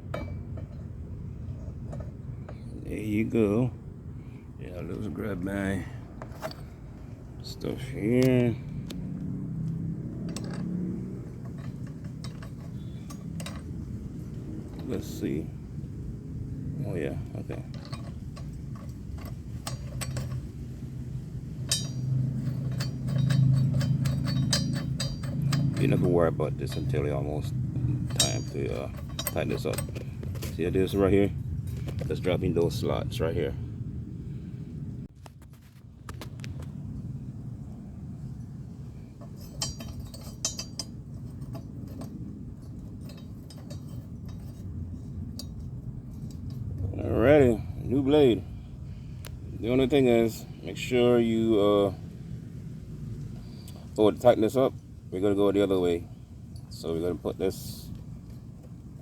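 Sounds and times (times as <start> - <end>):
low steady hum: 0.0 - 59.0
metal tools clinking: 6.2 - 6.8, 9.7 - 15.8, 17.1 - 32.8, 38.9 - 47.9.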